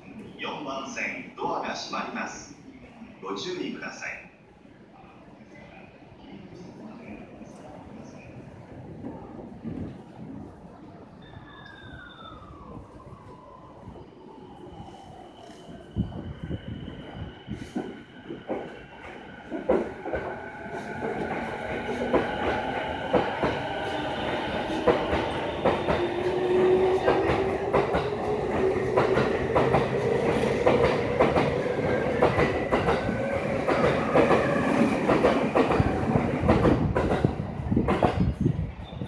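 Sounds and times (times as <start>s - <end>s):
train rumble: 12.5s - 39.0s.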